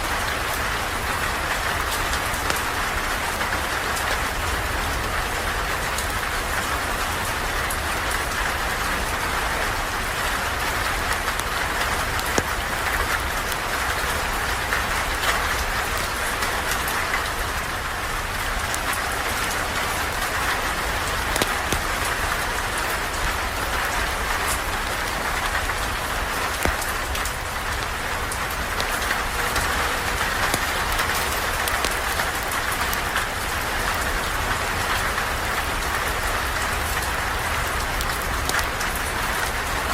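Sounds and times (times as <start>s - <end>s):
steady rain falling: 0.0s - 39.9s
campfire crackling: 7.1s - 39.9s.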